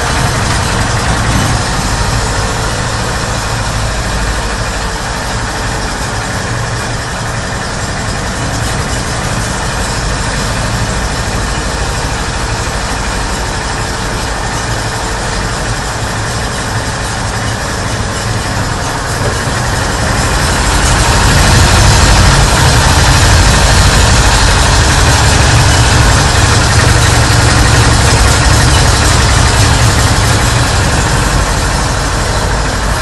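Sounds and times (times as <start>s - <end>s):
engine running: 0.0s - 33.0s.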